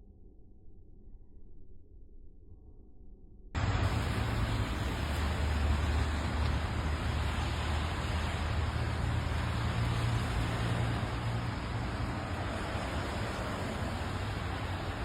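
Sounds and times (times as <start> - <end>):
vehicle driving rumble: 3.6 - 15.0.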